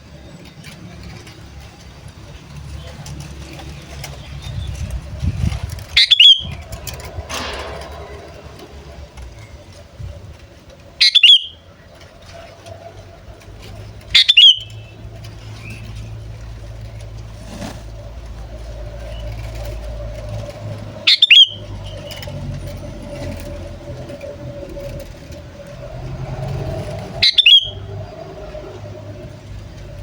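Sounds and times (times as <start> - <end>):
bulbul call: 5.9 - 6.6, 11.0 - 11.6, 21.1 - 21.7, 27.2 - 27.8.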